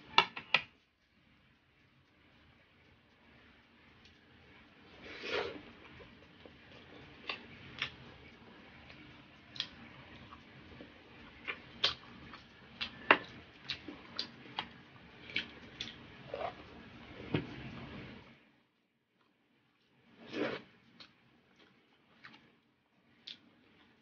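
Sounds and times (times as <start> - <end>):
chewing and lip-smacking: 3.9 - 16.8, 23.2 - 24.0.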